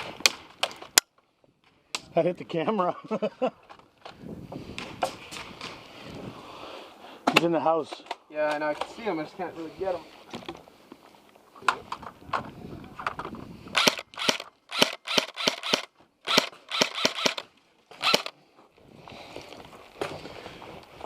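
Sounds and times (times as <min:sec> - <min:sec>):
gunshots: 0:13.8 - 0:17.4, 0:18.0 - 0:18.3.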